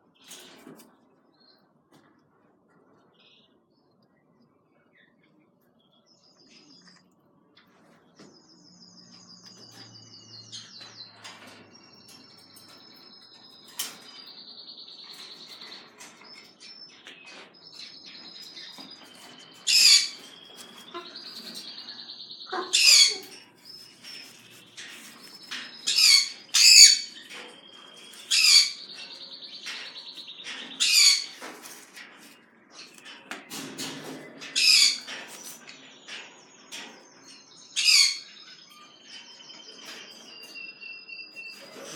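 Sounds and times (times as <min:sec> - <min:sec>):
pet birds chirping and trilling: 0:00.0 - 0:41.9
bird squawks: 0:22.4 - 0:23.5.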